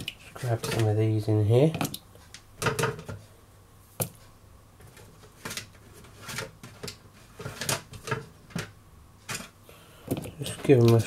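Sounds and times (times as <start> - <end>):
hands handling chicken and bowls: 0.0 - 1.0.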